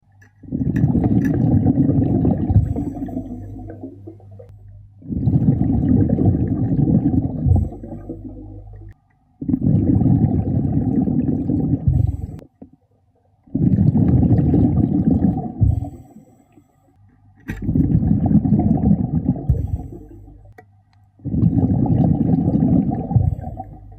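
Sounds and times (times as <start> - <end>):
underwater exhaled bubbles rumbling: 0.4 - 12.8, 13.4 - 16.3, 17.5 - 20.6, 21.2 - 23.9.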